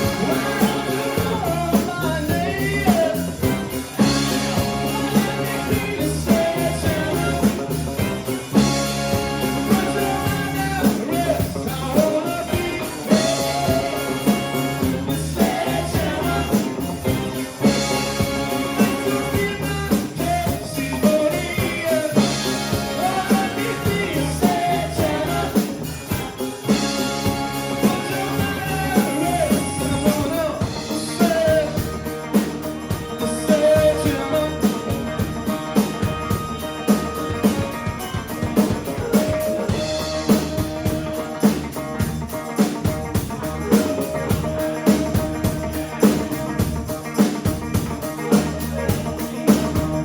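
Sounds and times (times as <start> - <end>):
person singing lead vocal: 0.0 - 36.4
drum kit beat: 0.0 - 50.0
rock band playing: 0.0 - 50.0.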